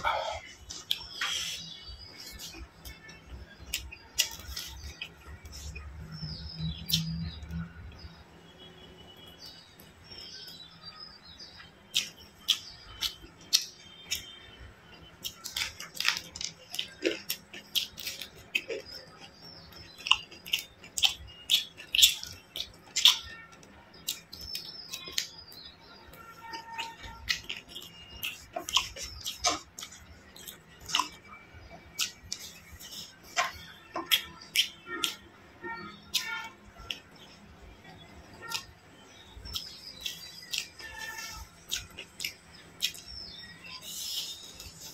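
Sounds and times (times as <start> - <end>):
wet chewing and lip-smacking: 0.1 - 7.6, 11.6 - 25.6, 26.4 - 44.9
wet mouth sounds of eating: 26.5 - 31.2.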